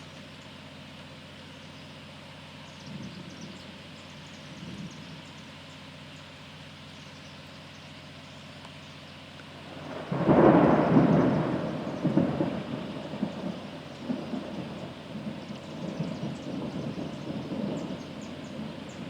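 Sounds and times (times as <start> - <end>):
steady rain: 8.0 - 19.0
thunder rumbling and cracking: 9.7 - 19.0.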